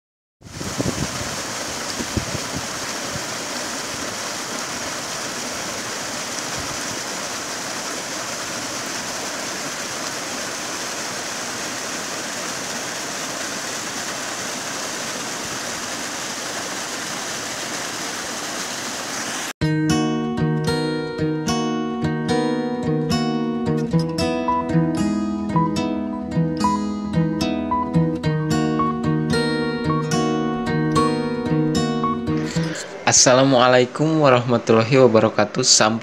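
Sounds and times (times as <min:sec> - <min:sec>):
stream running over rocks: 0:00.4 - 0:19.6.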